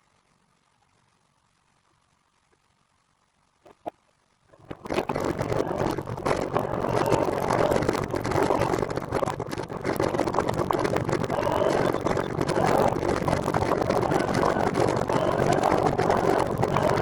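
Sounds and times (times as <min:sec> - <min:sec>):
fluttering wind buffets: 0:04.6 - 0:17.0.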